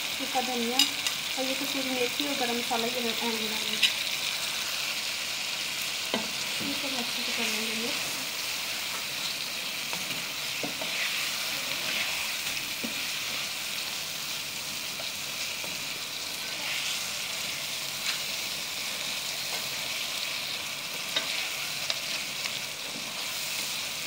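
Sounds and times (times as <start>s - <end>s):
chicken sizzling in oil: 0.0s - 24.0s
spatula stirring in pan: 6.1s - 24.0s.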